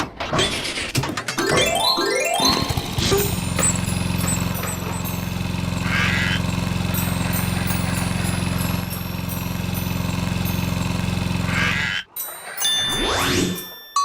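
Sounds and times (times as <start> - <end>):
low buzzing motor drone: 2.7 - 12.1.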